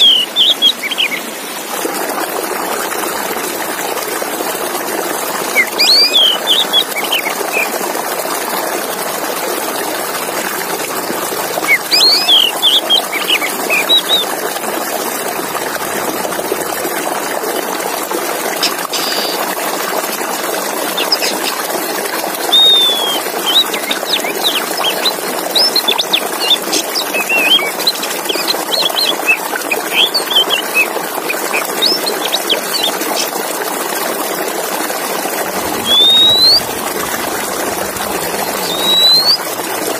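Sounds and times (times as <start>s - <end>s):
bird singing whistled notes: 0.0s - 1.2s, 5.6s - 7.7s, 11.7s - 14.3s, 22.5s - 26.6s, 27.2s - 27.7s, 28.3s - 32.9s, 35.8s - 36.8s, 38.3s - 39.5s
running water: 0.0s - 39.9s.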